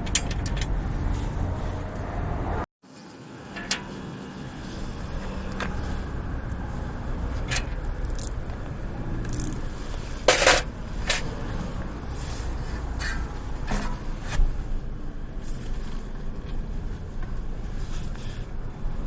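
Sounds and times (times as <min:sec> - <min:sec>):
metal clatter: 0:00.0 - 0:00.8, 0:03.5 - 0:04.0, 0:10.2 - 0:11.4, 0:12.9 - 0:14.4.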